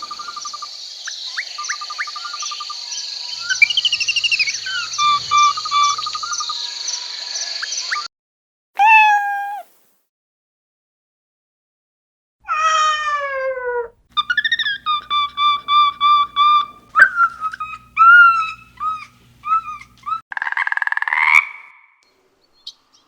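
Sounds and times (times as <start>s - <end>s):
drawn-out animal call: 0.0s - 0.5s, 3.4s - 6.4s, 14.2s - 20.2s
birds chirping and calling: 0.0s - 8.1s, 14.2s - 20.2s
crickets trilling: 0.0s - 8.1s, 14.2s - 20.2s.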